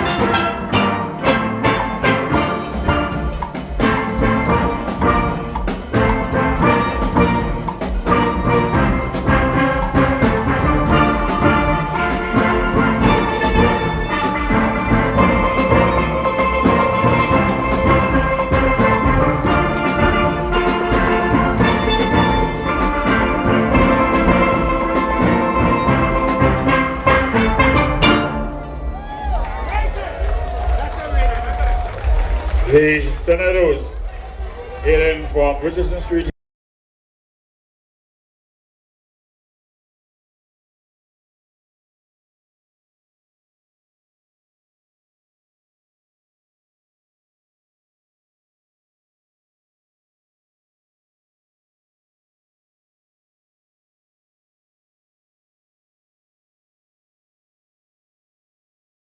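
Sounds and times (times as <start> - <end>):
steelpans playing rhythmic tune: 0.0 - 36.2
drums and percussion: 0.0 - 36.3.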